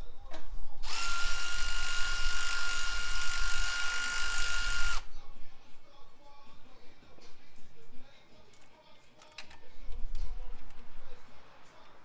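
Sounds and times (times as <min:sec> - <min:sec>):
power tool high whine: 0:00.8 - 0:05.0.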